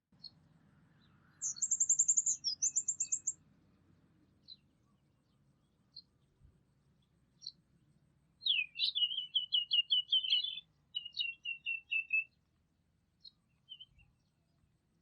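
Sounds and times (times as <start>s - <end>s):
songbird singing: 0.1s - 15.0s
bird chirps: 0.2s - 3.4s, 4.4s - 6.3s, 8.4s - 12.4s, 13.2s - 14.6s.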